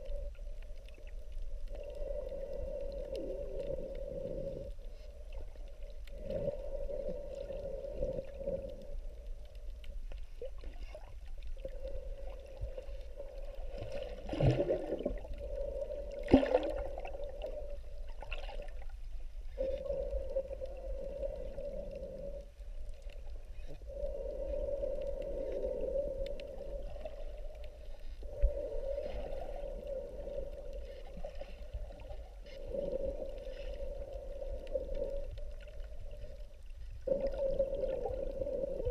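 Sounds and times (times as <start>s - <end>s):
low underwater rumble: 0.0s - 38.9s.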